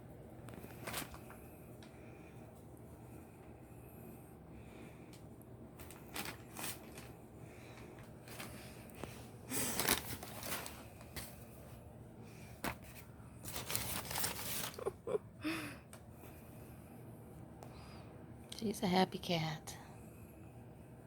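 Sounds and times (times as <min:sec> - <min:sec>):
packing paper rustling and crinkling: 0:00.5 - 0:01.9, 0:05.8 - 0:11.8, 0:12.4 - 0:15.2.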